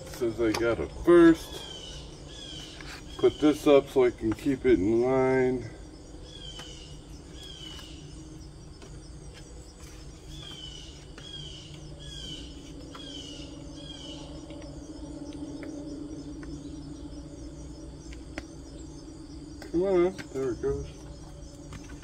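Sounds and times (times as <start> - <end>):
bird chirping: 0.0 - 5.0, 6.1 - 22.0
insect drone: 0.0 - 22.0
low hum: 0.0 - 22.0.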